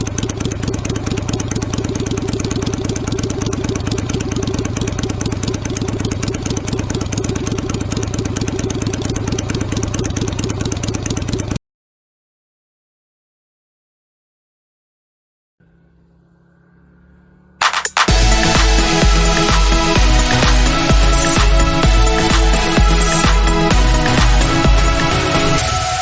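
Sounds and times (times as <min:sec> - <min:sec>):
motorcycle engine idling: 0:00.0 - 0:11.6, 0:15.6 - 0:26.0.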